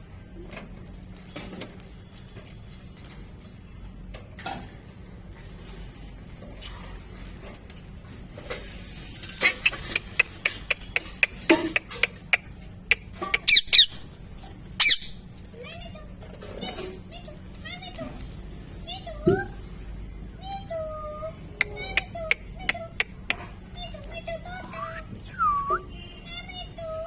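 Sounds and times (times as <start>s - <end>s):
parrot squeaks and clicks: 9.3s - 15.3s, 21.6s - 25.8s
parrot squawking: 9.4s - 14.1s, 14.8s - 15.2s.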